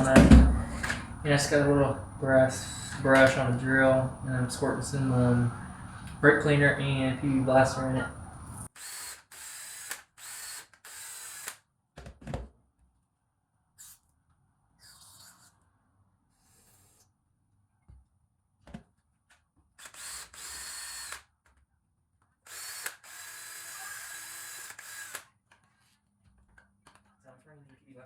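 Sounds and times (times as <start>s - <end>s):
power drill whining: 0.0s - 11.6s, 19.8s - 21.2s, 22.5s - 25.2s.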